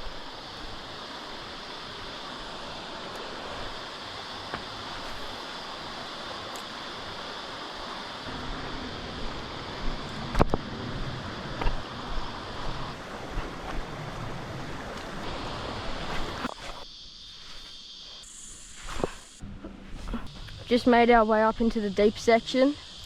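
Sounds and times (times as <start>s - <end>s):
creek water rushing over rapids: 0.0s - 16.5s.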